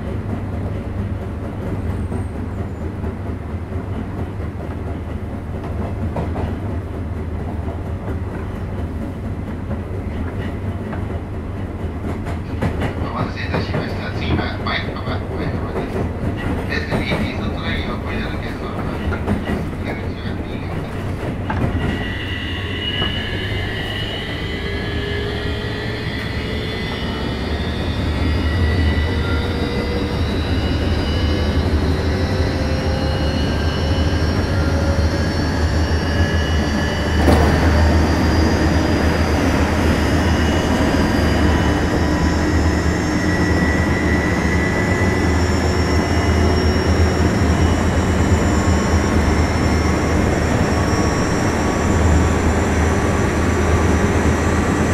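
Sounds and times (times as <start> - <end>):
rumble of wheels on rail: 0.0 - 54.9
electric train motor whine: 22.0 - 54.9.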